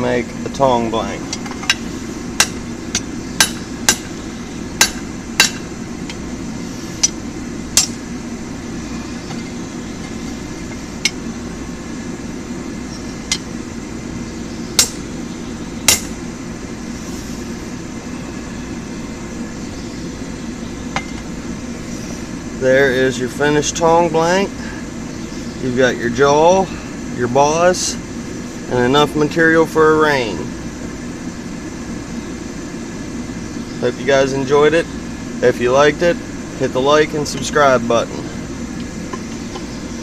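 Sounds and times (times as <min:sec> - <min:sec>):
steady low drone: 0:00.0 - 0:40.0
hammer striking metal on anvil: 0:02.4 - 0:04.1, 0:04.8 - 0:05.7, 0:07.8 - 0:08.0, 0:14.8 - 0:15.0, 0:15.8 - 0:16.2.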